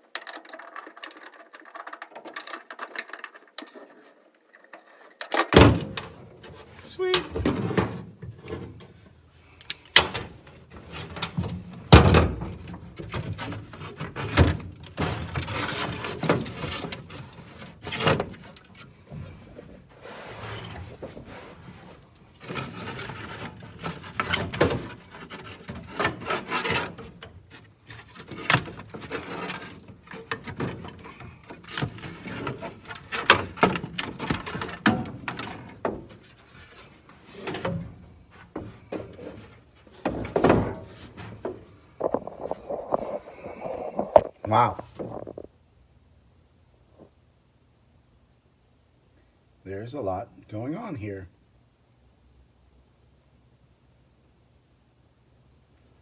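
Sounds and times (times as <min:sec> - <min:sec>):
knocks and clunks: 0:37.3 - 0:45.5.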